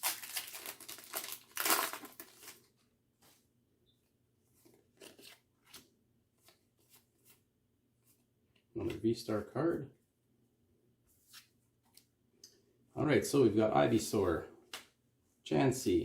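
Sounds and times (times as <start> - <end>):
cards rustling: 0.0 - 2.7, 4.6 - 7.4
foil pack ripping open: 0.0 - 2.7.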